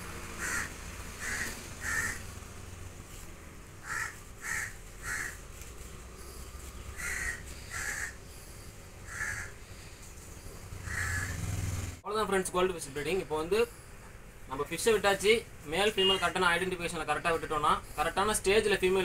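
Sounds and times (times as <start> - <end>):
bird calling: 0.4 - 2.3, 3.8 - 5.4, 6.2 - 11.4.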